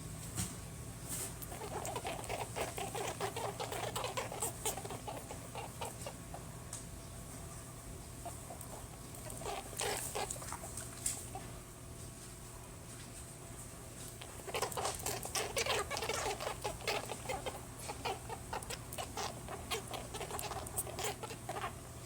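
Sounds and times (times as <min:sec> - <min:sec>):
rabbit making short sounds: 0:01.1 - 0:06.5, 0:08.2 - 0:11.6, 0:14.0 - 0:21.8.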